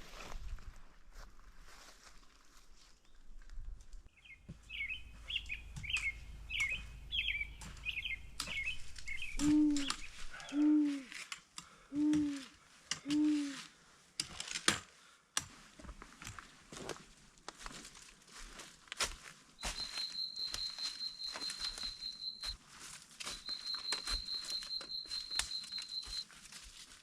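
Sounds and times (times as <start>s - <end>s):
footsteps crunching on path: 0.0s - 3.0s, 4.5s - 10.4s, 15.6s - 27.0s
songbird twittering: 4.2s - 10.6s, 19.6s - 22.5s, 23.3s - 26.2s
low clean hoots: 9.2s - 11.1s.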